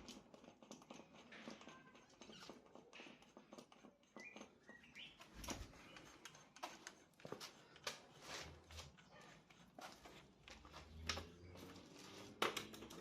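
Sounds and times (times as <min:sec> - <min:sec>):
bird chirps: 0:04.1 - 0:06.1.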